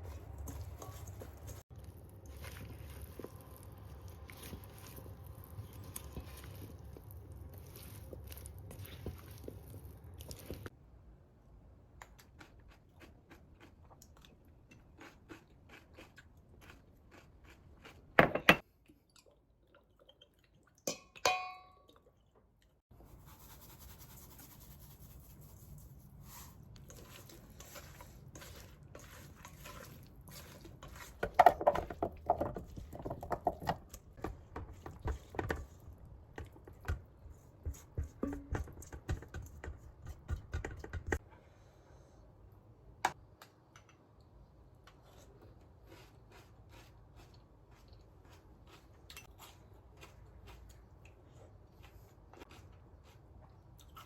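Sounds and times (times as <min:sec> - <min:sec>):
chewing: 0:12.0 - 0:18.1, 0:44.9 - 0:54.0.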